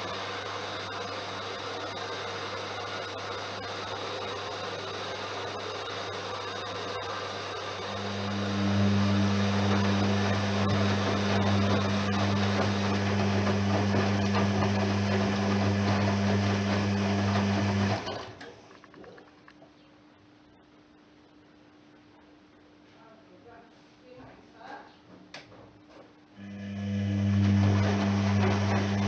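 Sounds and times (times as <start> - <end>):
washing machine motor hum: 0.0 - 19.6, 26.3 - 29.0.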